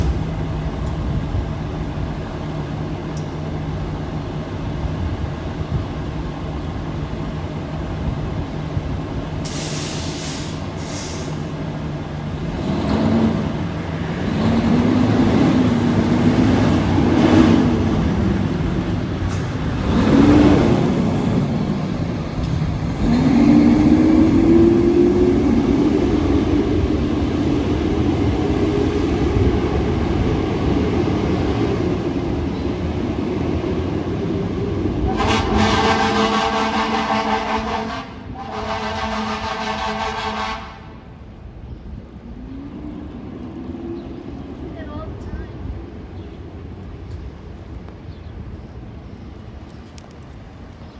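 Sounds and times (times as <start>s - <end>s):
air brakes hissing: 9.4s - 11.6s
truck engine revving: 10.3s - 29.5s.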